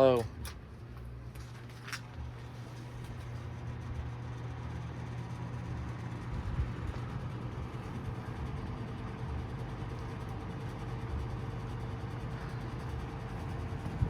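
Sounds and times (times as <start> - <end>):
box fan running: 0.0 - 14.0.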